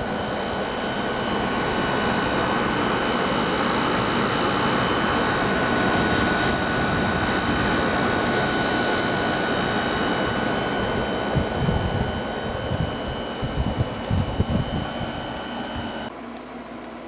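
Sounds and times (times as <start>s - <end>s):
high whine: 0.0s - 16.1s
air conditioner fan blowing: 0.0s - 17.0s.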